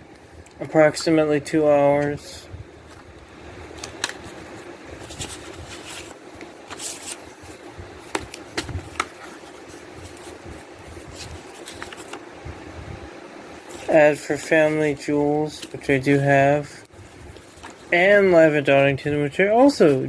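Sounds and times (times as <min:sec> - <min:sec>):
paper rustling: 0:02.8 - 0:12.3, 0:13.6 - 0:14.0, 0:14.6 - 0:16.3, 0:17.3 - 0:18.4
plastic disc case clicks: 0:03.8 - 0:04.3, 0:08.1 - 0:09.2.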